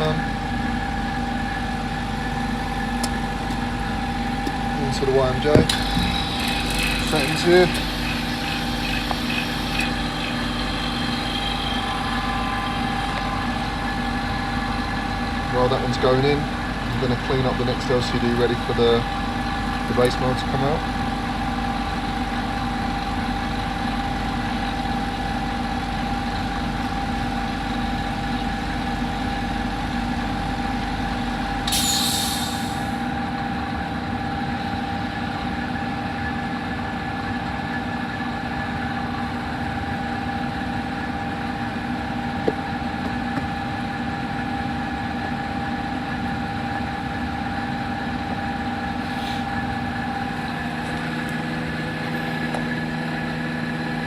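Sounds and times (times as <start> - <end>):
workshop machinery humming: 0.0 - 54.0
air hiss burst: 31.7 - 33.0.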